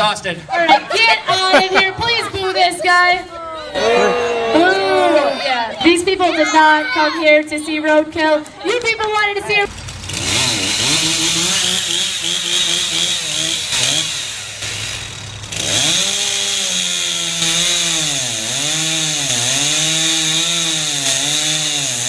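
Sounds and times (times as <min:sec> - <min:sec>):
chainsaw cutting wood: 0:09.7 - 0:22.0.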